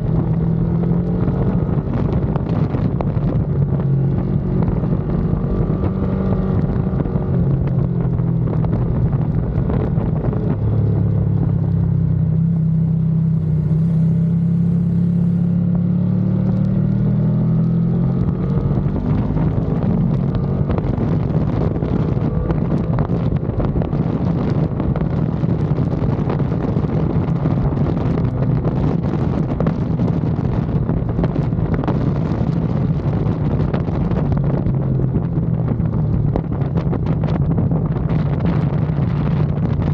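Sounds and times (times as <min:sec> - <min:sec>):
motorcycle engine revving: 0:00.0 - 0:39.9
wind rush on microphone: 0:00.0 - 0:39.9.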